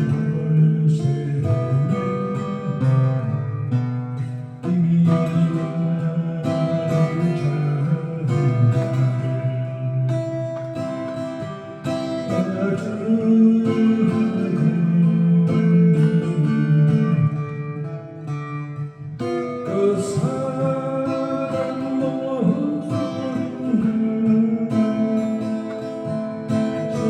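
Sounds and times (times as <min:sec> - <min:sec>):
acoustic guitar slow melody: 0:00.0 - 0:27.0.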